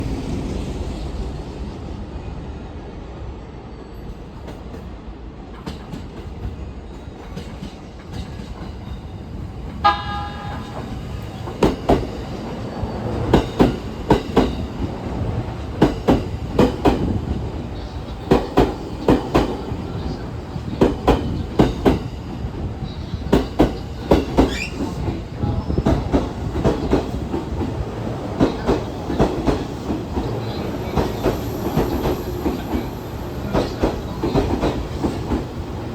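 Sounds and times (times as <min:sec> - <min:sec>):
electronic train horn blast: 0:09.8 - 0:11.1
train wheels clattering over rail joints: 0:10.6 - 0:35.9.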